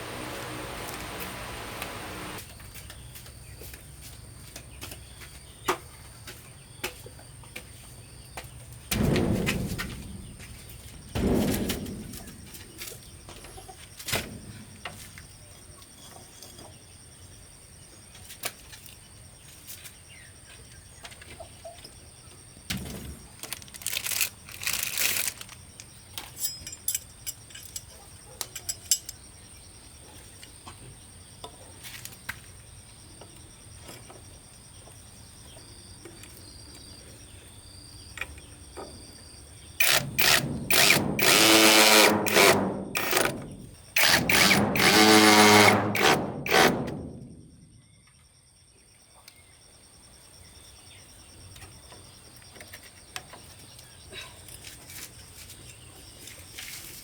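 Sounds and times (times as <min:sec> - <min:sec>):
power drill starting: 0:00.0 - 0:02.4, 0:39.8 - 0:43.4, 0:44.0 - 0:46.8.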